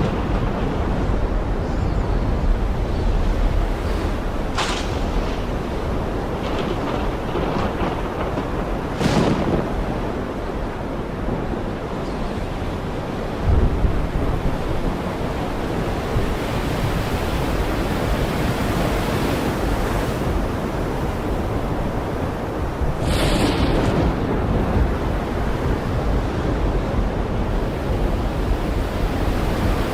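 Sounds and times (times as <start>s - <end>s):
heavy rain falling: 3.4s - 12.0s, 20.3s - 29.9s
sudden gust of noise: 23.0s - 24.3s.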